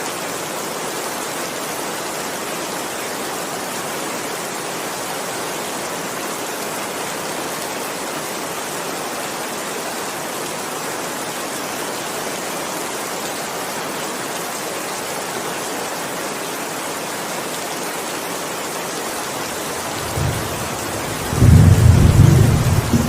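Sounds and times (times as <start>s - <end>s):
heavy rain hissing: 17.1s - 23.0s
thunder rumble: 19.7s - 23.0s.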